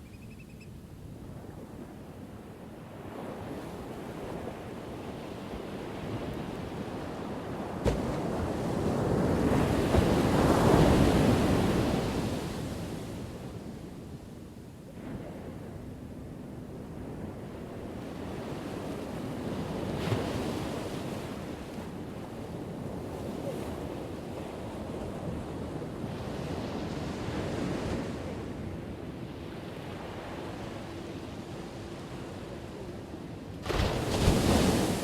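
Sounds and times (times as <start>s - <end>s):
ocean waves breaking on shore: 1.2s - 35.0s.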